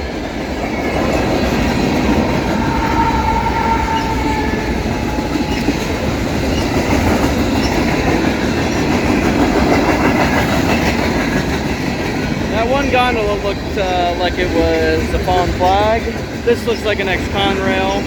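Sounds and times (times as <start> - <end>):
freight train wheels rumbling: 0.0 - 18.0
faint wheel squeal: 2.5 - 5.8.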